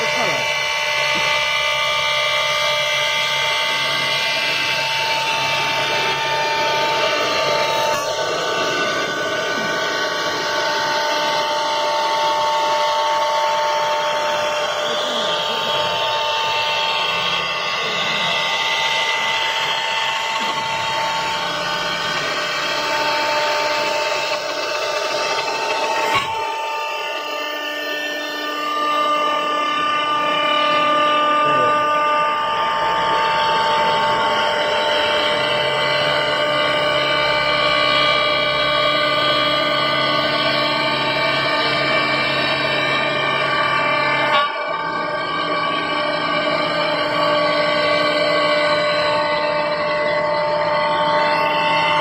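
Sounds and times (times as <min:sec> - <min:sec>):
cnc router whining: 0:00.0 - 0:52.0
rough machining noise: 0:00.0 - 0:52.0.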